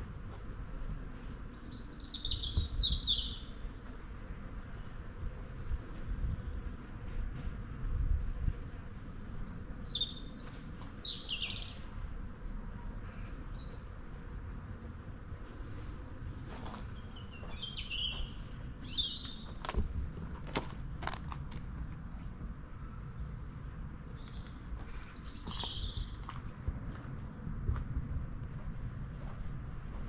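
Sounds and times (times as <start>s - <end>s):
songbirds singing: 1.2s - 4.0s, 8.9s - 12.1s, 12.8s - 14.0s, 16.7s - 19.8s, 22.1s - 26.5s
steady low rumble: 11.0s - 30.0s.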